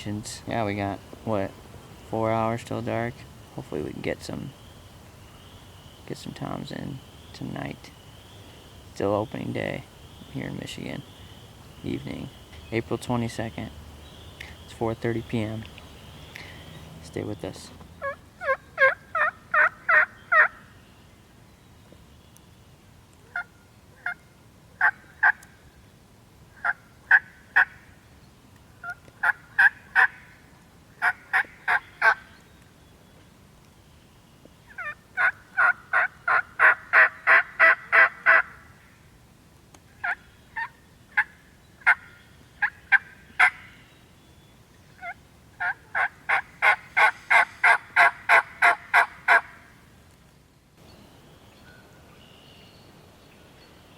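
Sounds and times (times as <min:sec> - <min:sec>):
turkey yelping: 0:18.0 - 0:20.6, 0:23.3 - 0:24.2, 0:26.6 - 0:27.8, 0:28.8 - 0:30.2, 0:31.0 - 0:32.3, 0:34.7 - 0:38.6, 0:40.0 - 0:43.7, 0:45.0 - 0:49.6.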